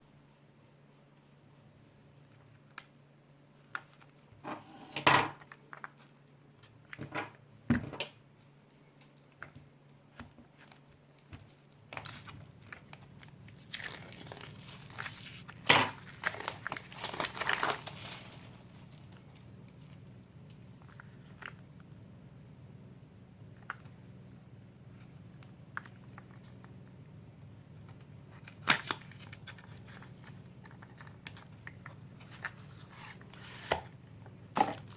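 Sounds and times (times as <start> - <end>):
packaging crinkling and tearing: 10.2 - 20.2, 28.3 - 34.9.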